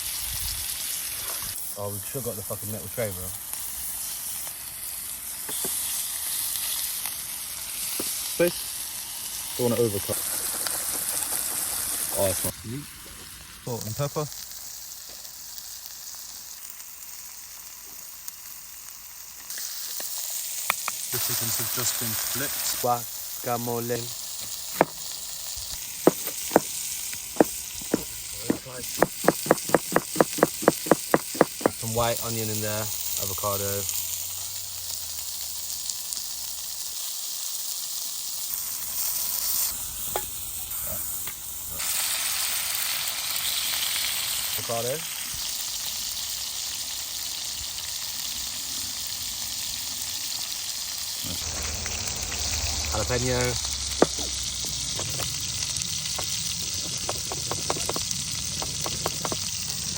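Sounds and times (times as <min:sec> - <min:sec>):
chicken sizzling in a pan: 0:00.0 - 0:59.9
sharp knocks: 0:26.1 - 0:26.7, 0:27.4 - 0:31.8, 0:53.9 - 0:54.4
low rumble: 0:51.2 - 0:57.5.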